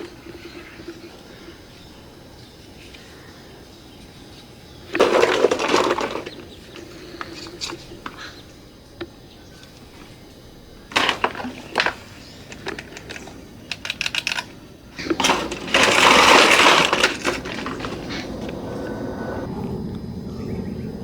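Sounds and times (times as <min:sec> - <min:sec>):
plastic parts rattling and scraping: 0:00.0 - 0:01.7, 0:04.9 - 0:08.2, 0:10.9 - 0:18.6
plastic toy parts knocking: 0:04.9 - 0:08.2, 0:10.9 - 0:18.3.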